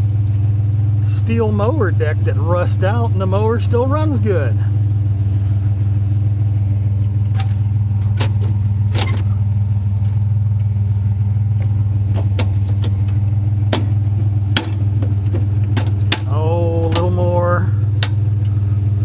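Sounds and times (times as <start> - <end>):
truck engine droning: 0.0 - 19.0
clicks and rattles in cab: 7.0 - 10.8, 11.5 - 18.6.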